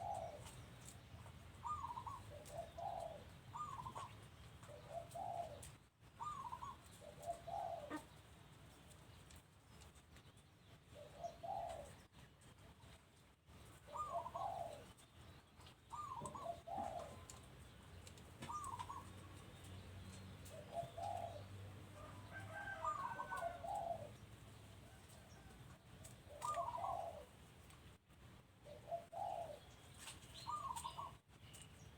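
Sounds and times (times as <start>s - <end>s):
doves cooing: 0.0s - 0.9s, 1.6s - 8.2s, 11.0s - 12.1s, 13.8s - 15.0s, 15.9s - 17.5s, 18.4s - 19.6s, 20.4s - 24.2s, 24.8s - 27.4s, 28.6s - 29.8s, 30.4s - 31.2s.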